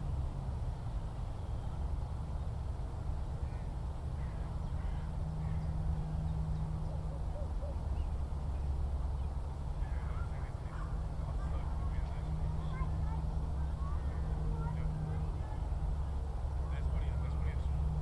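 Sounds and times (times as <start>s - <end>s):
faint bird calls: 3.4s - 11.0s.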